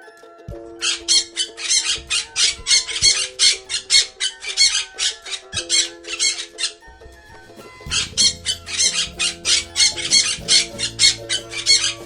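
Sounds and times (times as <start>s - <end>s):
soft background music chord: 0.0s - 12.0s
parrot squawking: 0.8s - 6.8s, 7.4s - 12.0s.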